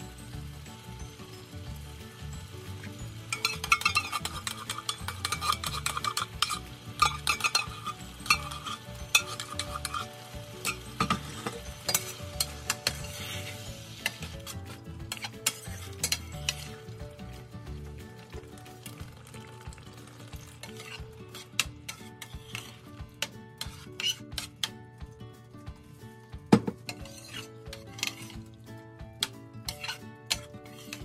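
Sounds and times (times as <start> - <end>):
sizzle: 0.0 - 24.7, 26.9 - 31.0
utensils scraping a frying pan: 2.3 - 17.5, 20.3 - 24.9, 26.7 - 31.0.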